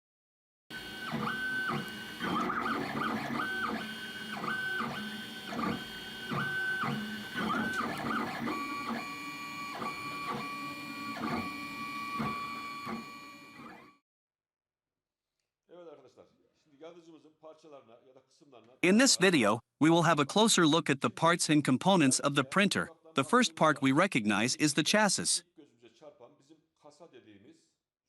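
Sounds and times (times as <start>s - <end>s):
stepper motors whining: 0.8s - 13.9s.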